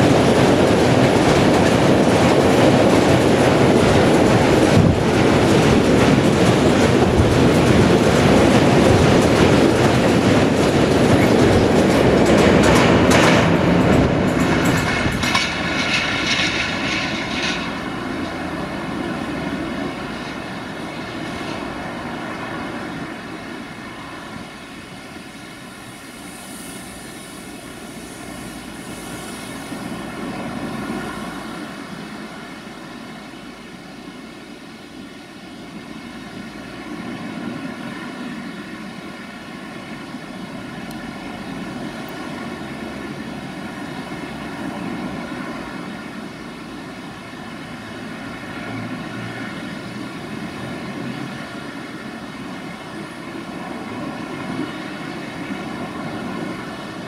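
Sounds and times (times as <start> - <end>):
wagon wheels rolling on track: 0.0 - 26.1
diesel locomotive engine droning: 0.0 - 57.0.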